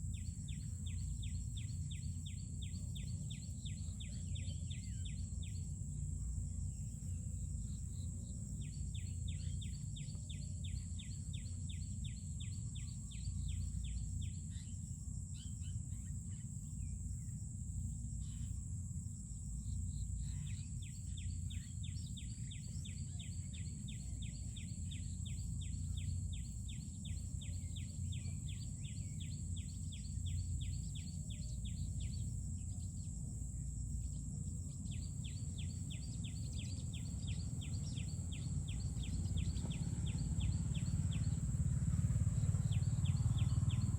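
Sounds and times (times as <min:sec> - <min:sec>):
rapid repeated chirping: 0:19.5 - 0:43.9.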